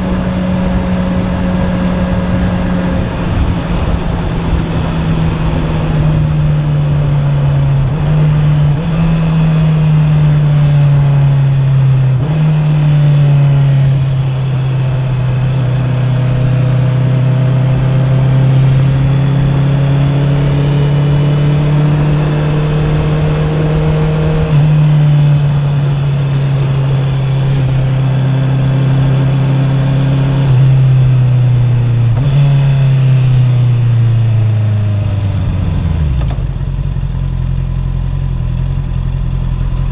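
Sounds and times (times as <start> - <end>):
wind noise: 0.0 - 10.4
motorcycle engine revving: 0.0 - 39.9
road noise: 0.0 - 39.9.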